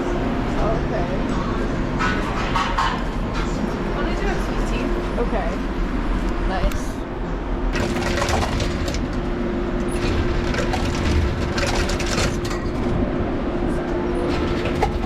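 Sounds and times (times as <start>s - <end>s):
train hum: 0.0s - 15.0s
train car rattling and clicking: 7.7s - 15.0s.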